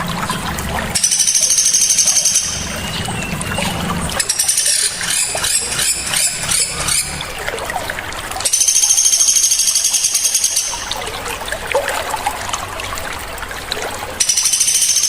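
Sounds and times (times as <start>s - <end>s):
small birds trilling and chirping: 0.0s - 7.4s, 8.4s - 11.1s, 14.2s - 15.0s
running water trickling: 0.0s - 15.0s.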